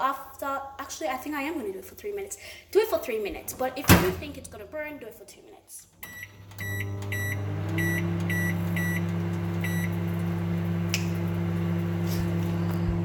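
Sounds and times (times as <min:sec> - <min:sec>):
microwave oven humming: 0:06.0 - 0:13.0.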